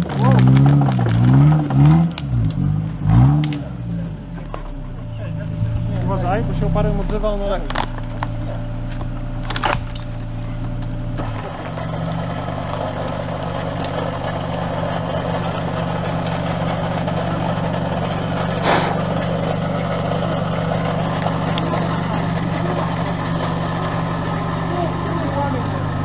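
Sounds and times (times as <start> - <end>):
off-road vehicle engine running: 0.0 - 26.0
short hiss: 18.6 - 19.1.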